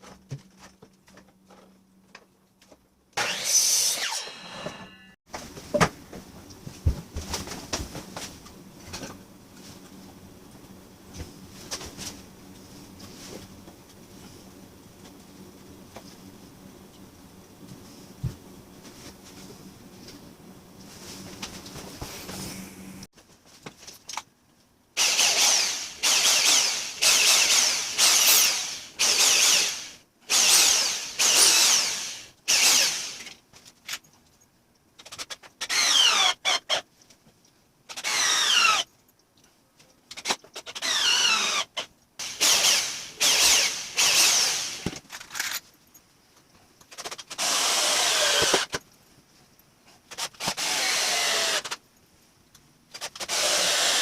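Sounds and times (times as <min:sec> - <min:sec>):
power drill driving into wood: 0:03.2 - 0:05.1, 0:25.0 - 0:33.3, 0:35.6 - 0:36.8, 0:38.0 - 0:38.9, 0:40.8 - 0:44.9, 0:47.4 - 0:48.8, 0:50.4 - 0:51.8, 0:53.2 - 0:54.0.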